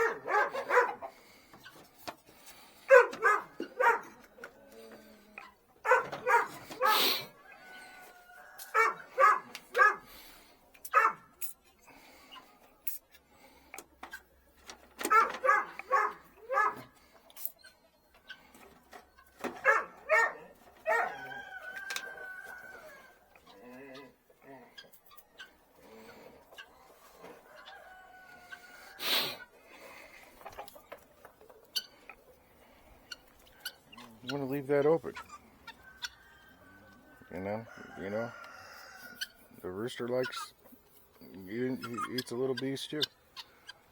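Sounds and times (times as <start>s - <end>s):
dog barking: 0.0s - 1.1s, 2.9s - 4.2s, 5.8s - 7.2s, 8.7s - 10.1s, 10.9s - 11.3s, 15.0s - 16.9s, 19.6s - 21.4s
rooster crowing: 6.8s - 9.3s, 20.9s - 23.1s, 35.8s - 39.2s.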